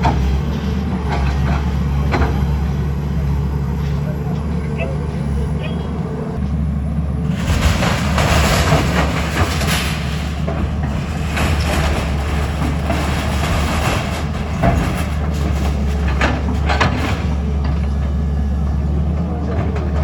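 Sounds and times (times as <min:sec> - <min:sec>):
heavy engine running: 0:00.0 - 0:20.0
metallic rattling and clanking: 0:07.2 - 0:18.1.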